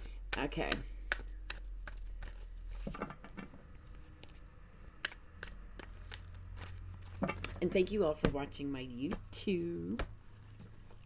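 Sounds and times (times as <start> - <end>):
cards clicking and rustling: 3.9 - 7.6.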